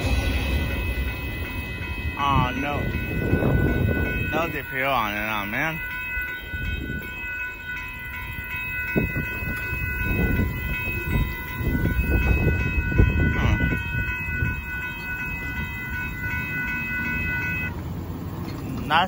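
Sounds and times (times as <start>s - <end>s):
crossing warning bell: 0.0s - 19.0s
train wheels rumbling: 0.0s - 19.0s.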